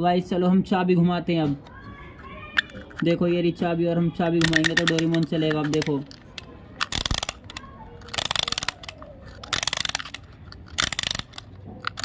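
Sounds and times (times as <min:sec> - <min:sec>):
wind-up toy ratchet clicking: 0:02.5 - 0:03.0, 0:04.4 - 0:12.0.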